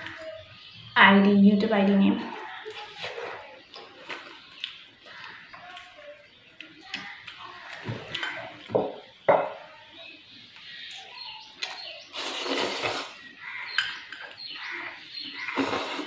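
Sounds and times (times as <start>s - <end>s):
loud slurp: 12.1s - 13.2s, 15.4s - 16.0s
person chewing noodles: 15.3s - 16.0s.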